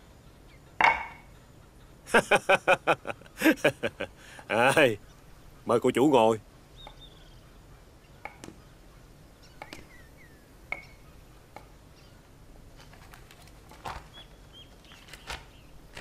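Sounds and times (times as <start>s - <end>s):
faint bird chirps: 4.0s - 12.4s, 13.8s - 15.8s.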